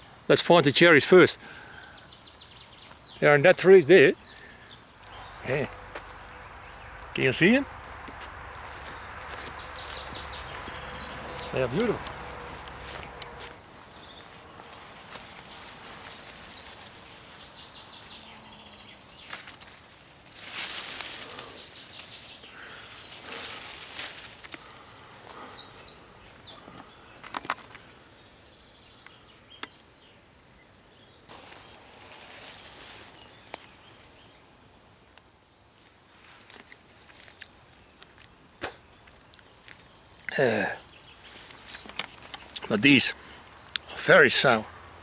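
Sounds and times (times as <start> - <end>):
songbird singing: 0.0 - 35.8, 36.5 - 45.0
outdoor ambience: 0.0 - 45.0
rustling noise: 11.3 - 18.4, 19.2 - 24.6, 31.3 - 33.8, 41.2 - 42.6.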